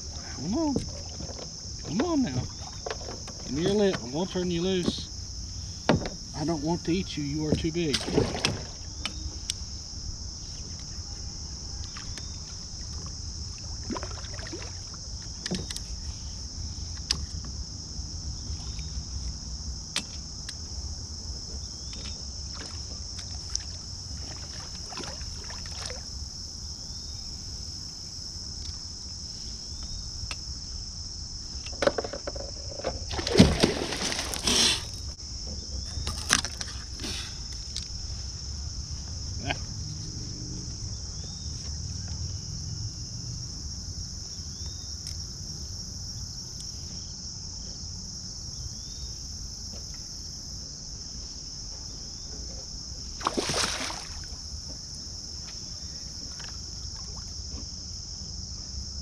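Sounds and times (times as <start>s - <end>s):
insects buzzing: 0.0s - 59.0s
knocks on kayak: 5.9s - 6.3s.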